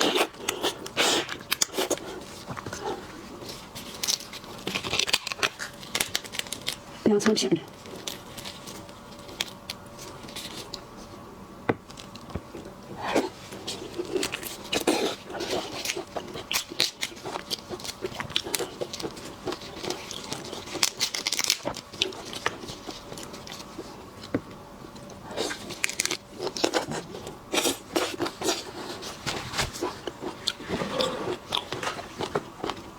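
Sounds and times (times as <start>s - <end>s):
crunchy bites and wet chewing: 0.0s - 6.9s, 11.8s - 24.3s, 25.0s - 32.9s.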